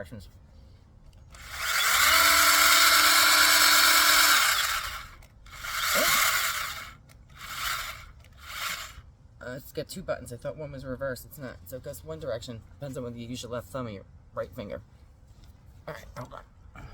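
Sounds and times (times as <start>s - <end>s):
electric chainsaw whining: 1.3s - 9.0s.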